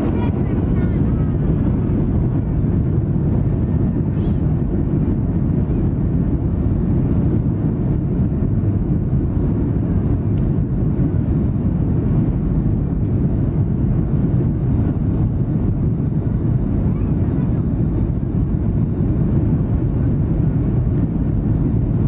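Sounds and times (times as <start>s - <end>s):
rushing air: 0.0s - 4.0s
jet engines rumbling: 0.0s - 22.0s.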